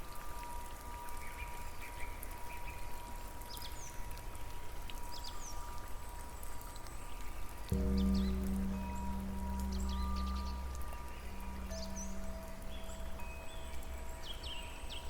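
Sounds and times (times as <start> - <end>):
faint high tone: 7.8 - 14.1.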